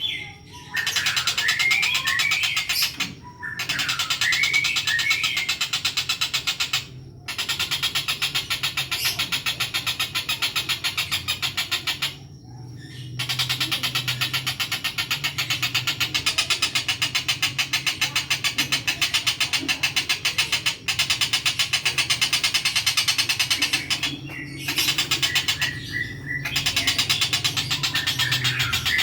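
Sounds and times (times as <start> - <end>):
kingfisher calling: 13.2 - 29.0.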